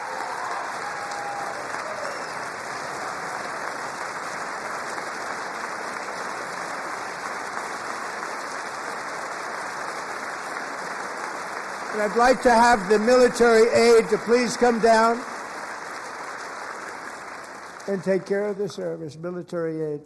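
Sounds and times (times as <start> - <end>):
large audience applauding: 0.0 - 19.2.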